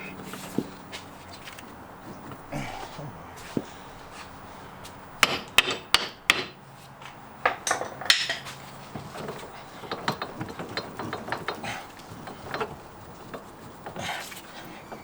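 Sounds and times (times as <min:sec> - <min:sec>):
metal tools clanking on car parts: 0:00.0 - 0:15.0
light clicks and rattles: 0:07.1 - 0:15.0.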